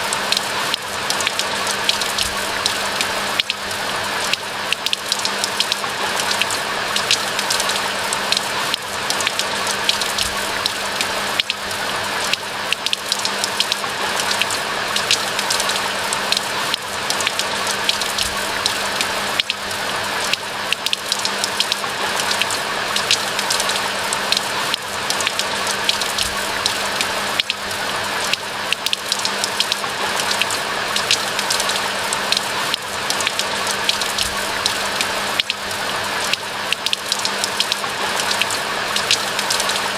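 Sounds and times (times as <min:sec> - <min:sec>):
rain falling in a forest: 0:00.0 - 0:39.9.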